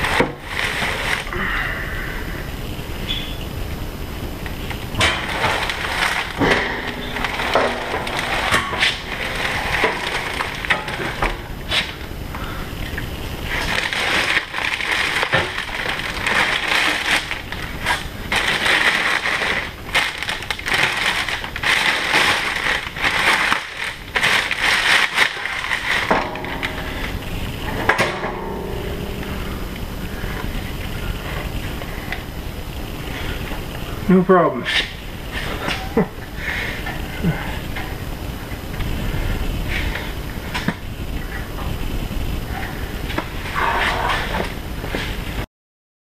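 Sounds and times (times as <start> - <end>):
plastic wrap crinkling: 0.0 - 1.4, 4.5 - 12.1, 12.8 - 27.8.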